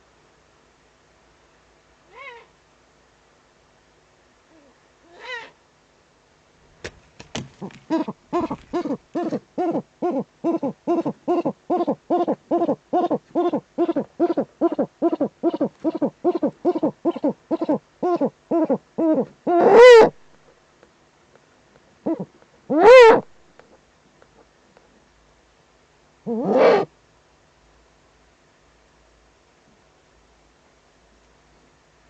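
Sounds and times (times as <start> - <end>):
owl calling: 7.6 - 20.2, 22.0 - 23.3, 26.3 - 26.9.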